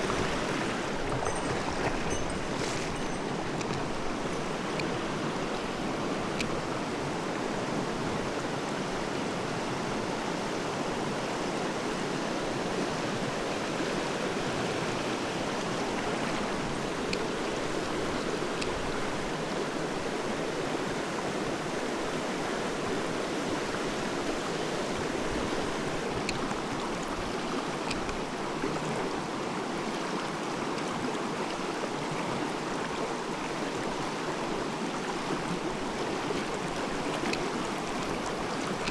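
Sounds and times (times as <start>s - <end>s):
stream rushing over rocks: 0.0s - 38.9s
faint clicks: 36.9s - 38.9s.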